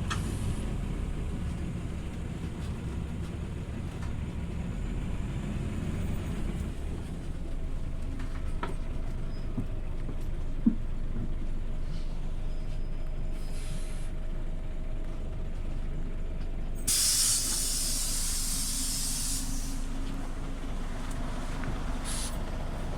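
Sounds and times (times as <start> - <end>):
bus engine rumble: 0.0 - 22.9
compressed air hiss: 16.9 - 20.0, 22.0 - 22.4.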